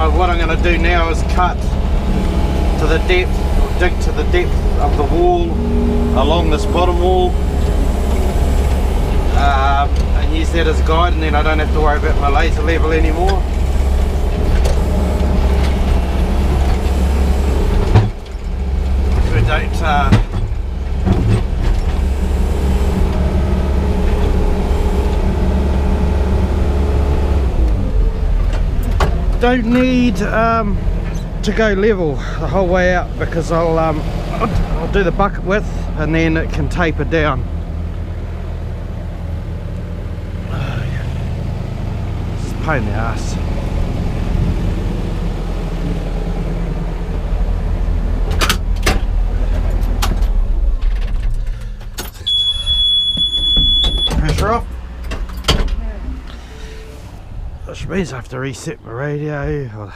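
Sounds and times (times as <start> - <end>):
excavator engine and hydraulics: 0.0 - 59.9.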